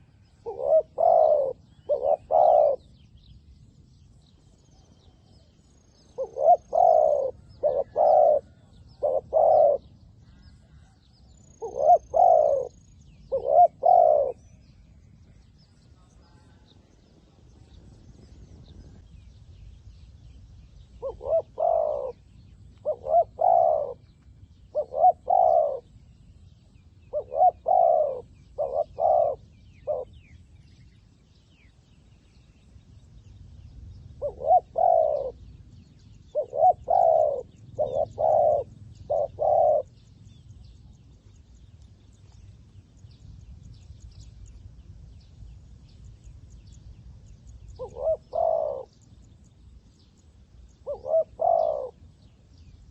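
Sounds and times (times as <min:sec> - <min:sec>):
dove cooing: 0:00.0 - 0:02.9, 0:06.0 - 0:11.0, 0:11.6 - 0:14.5, 0:21.0 - 0:24.1, 0:24.7 - 0:26.0, 0:27.0 - 0:30.3, 0:34.2 - 0:35.5, 0:36.3 - 0:40.0, 0:47.7 - 0:49.0, 0:50.8 - 0:52.1.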